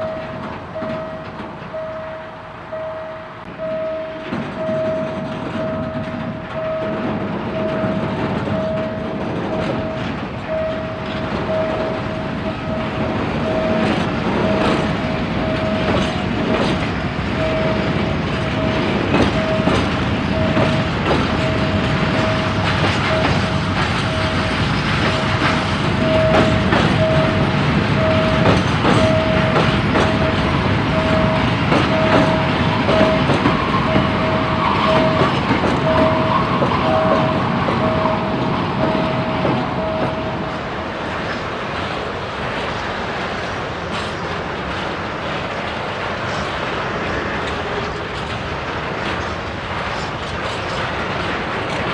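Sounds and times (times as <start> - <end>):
crossing signal beeping: 0.0 - 40.8
train wheels clicking on rails: 0.0 - 51.9.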